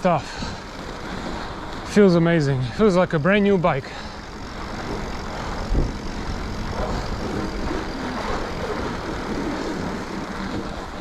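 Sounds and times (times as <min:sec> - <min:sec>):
bike tyres rolling over snow: 0:00.0 - 0:11.0
wind on microphone: 0:04.3 - 0:11.0.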